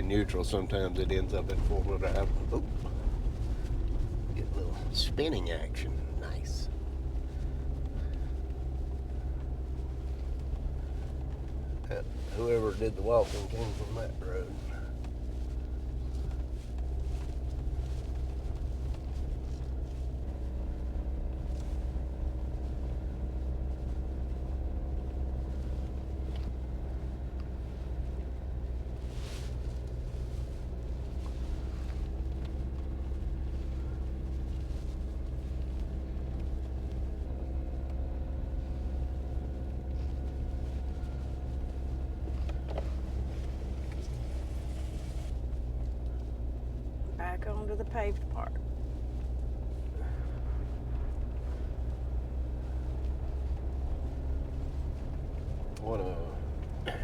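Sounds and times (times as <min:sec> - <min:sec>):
constant hum: 0:00.0 - 0:57.0
engine and tyres rumbling: 0:00.0 - 0:57.0.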